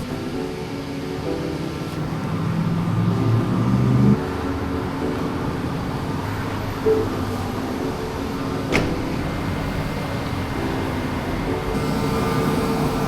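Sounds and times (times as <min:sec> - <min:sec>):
car cabin noise: 0:06.7 - 0:13.0.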